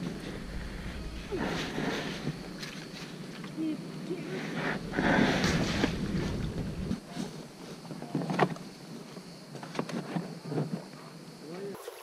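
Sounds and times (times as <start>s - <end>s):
low rumble: 0.0s - 7.1s
faint hiss: 0.0s - 12.0s.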